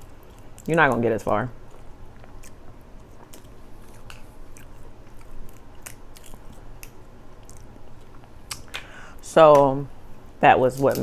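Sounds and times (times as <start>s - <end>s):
chewing crab meat: 0.0s - 11.0s
wet mouth clicks and smacks: 1.7s - 8.9s.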